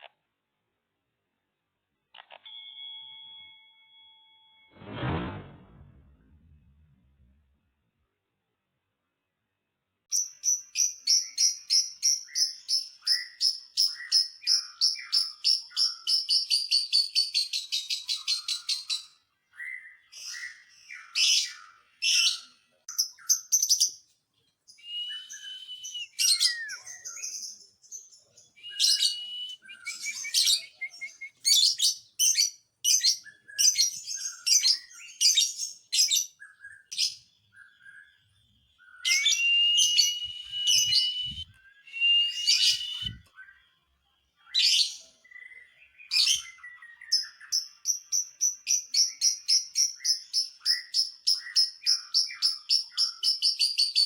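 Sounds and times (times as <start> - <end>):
lovebird chirping and trilling: 24.9 - 27.6, 28.6 - 38.0, 38.8 - 43.2.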